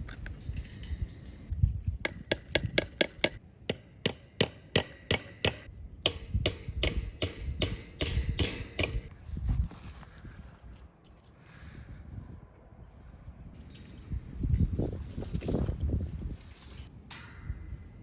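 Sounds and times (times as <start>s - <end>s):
sharp knocks: 2.1s - 9.1s.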